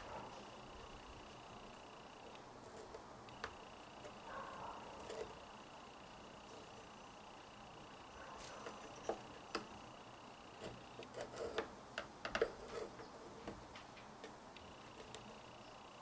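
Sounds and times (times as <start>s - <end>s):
small clicks and taps: 2.2s - 4.2s, 8.4s - 9.8s, 10.6s - 15.3s.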